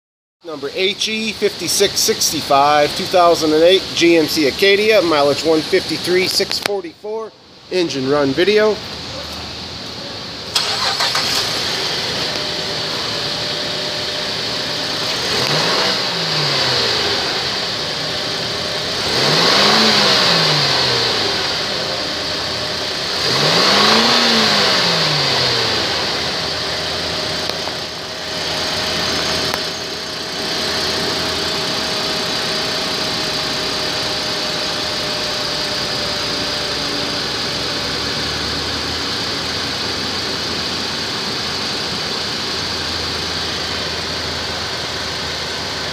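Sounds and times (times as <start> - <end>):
car engine idling and revving: 0.5 - 45.9.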